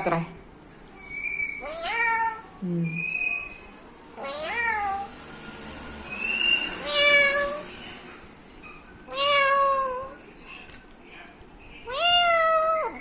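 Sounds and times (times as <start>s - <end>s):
meow-like animal cries: 1.4s - 2.5s, 4.2s - 5.1s, 6.6s - 7.7s, 9.1s - 10.2s, 11.9s - 13.0s.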